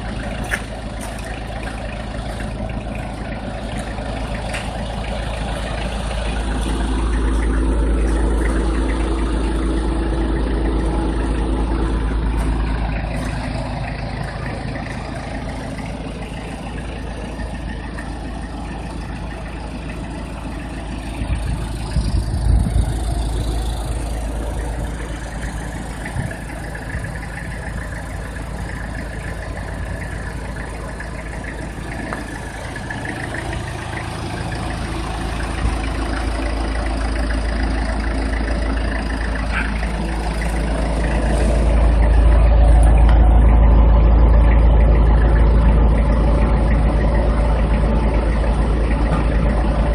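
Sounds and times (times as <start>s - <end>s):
vehicle engine idling: 0.0s - 49.9s.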